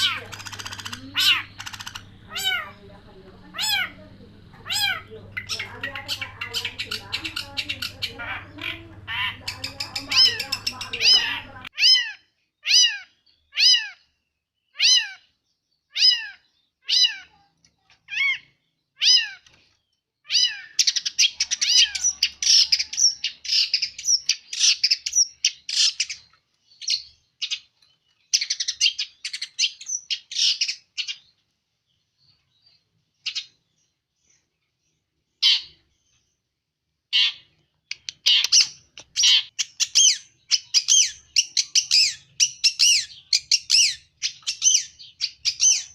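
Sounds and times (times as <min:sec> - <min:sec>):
bird scratchy chatter: 0:00.0 - 0:12.0, 0:37.2 - 0:45.9.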